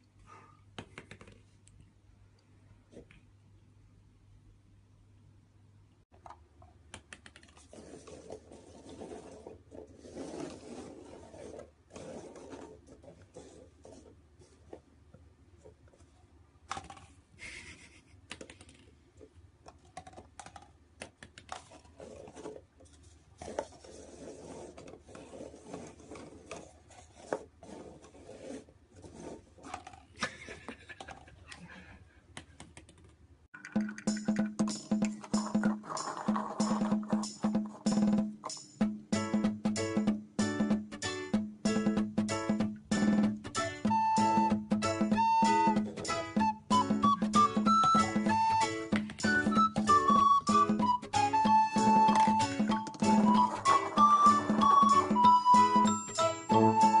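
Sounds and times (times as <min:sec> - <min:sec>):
music with percussive beat: 0:33.7 - 0:57.0
rapid clicking and scratching: 0:35.1 - 0:38.6.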